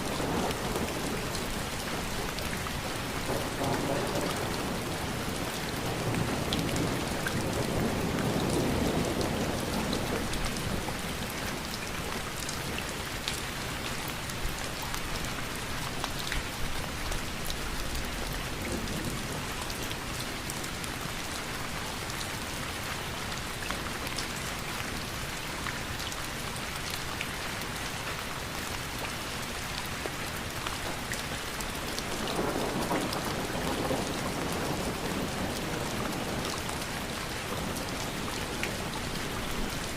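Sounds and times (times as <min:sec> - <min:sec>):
steady rain: 0:00.0 - 0:39.9
distant thunder rumble: 0:03.0 - 0:10.8, 0:32.0 - 0:38.0.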